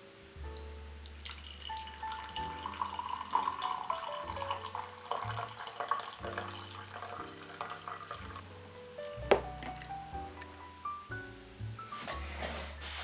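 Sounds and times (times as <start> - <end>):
music with sustained notes and bass: 0.0 - 5.6, 6.2 - 13.0
water running and splashing: 1.0 - 8.4.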